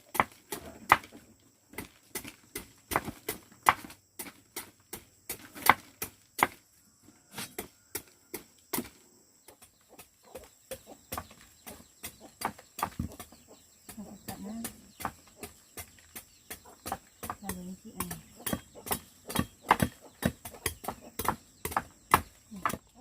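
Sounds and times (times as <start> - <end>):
knife chopping on wooden board: 10.3 - 23.0.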